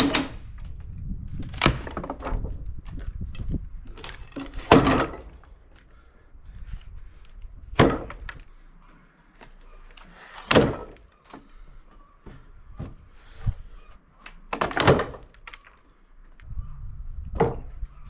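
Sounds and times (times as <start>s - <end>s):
wooden slabs dropped on stack: 1.4s - 5.5s, 7.8s - 8.4s, 9.4s - 11.5s, 14.3s - 15.8s, 17.3s - 17.8s.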